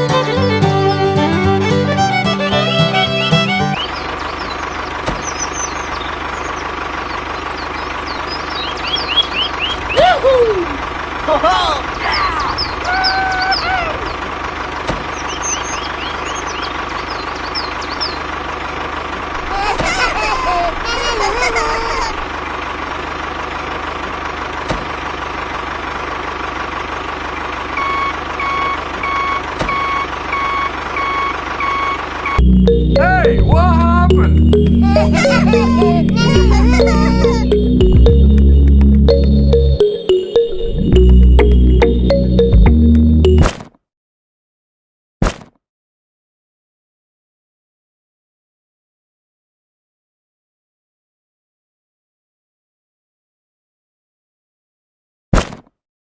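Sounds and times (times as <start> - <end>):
violin music: 0.0 - 3.8, 32.4 - 43.4
tractor engine idling: 0.0 - 10.0, 13.9 - 19.5
birds chirping: 0.0 - 10.1, 11.9 - 18.5, 32.6 - 43.4
reversing alarm beeping: 27.8 - 43.4.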